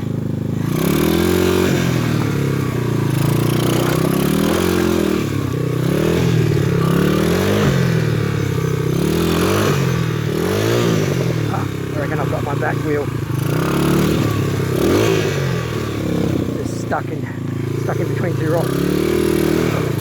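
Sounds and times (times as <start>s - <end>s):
motorbike engine revving: 0.0s - 20.0s.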